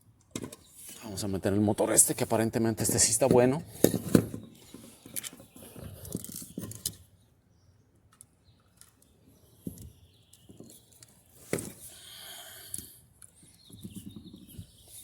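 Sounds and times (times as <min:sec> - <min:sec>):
clicks and knocks of parts handled: 0:00.2 - 0:01.0, 0:03.1 - 0:07.1, 0:08.0 - 0:11.9.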